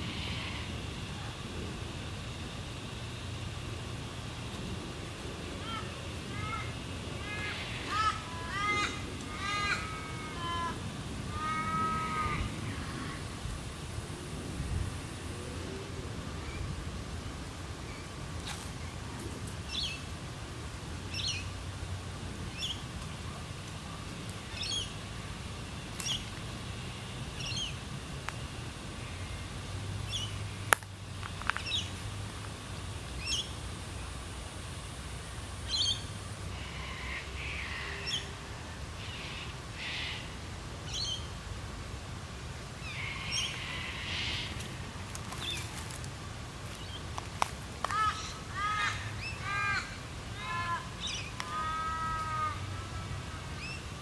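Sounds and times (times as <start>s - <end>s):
birds chattering: 5.5s - 13.6s, 22.5s - 25.0s, 35.6s - 38.4s, 42.8s - 46.0s, 47.8s - 54.0s.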